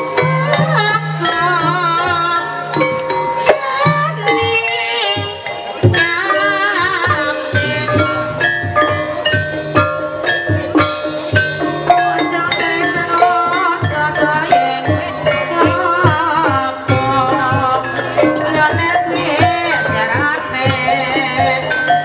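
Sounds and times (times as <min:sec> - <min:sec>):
person singing: 0:00.0 - 0:09.9, 0:11.8 - 0:22.0
drum strokes: 0:00.0 - 0:22.0
pitched percussion: 0:00.0 - 0:22.0.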